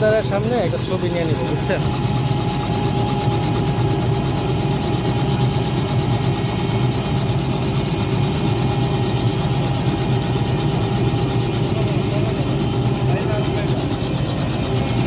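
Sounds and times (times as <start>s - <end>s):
helicopter engine and rotor drone: 0.0s - 15.0s.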